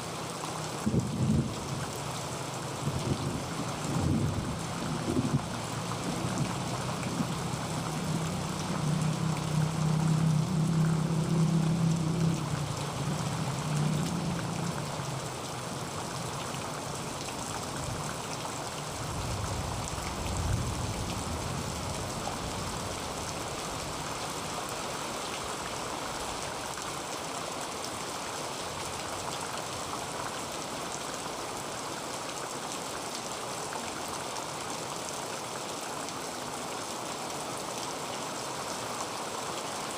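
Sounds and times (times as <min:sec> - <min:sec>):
heavy rain on a tin roof: 0:00.0 - 0:39.9
low rumble of thunder: 0:00.9 - 0:01.7, 0:02.8 - 0:08.2, 0:19.0 - 0:23.2.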